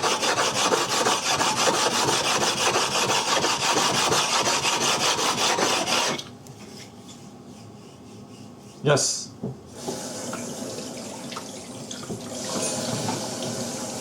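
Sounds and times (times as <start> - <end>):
stone scraping on abrasive surface: 0.0 - 7.3.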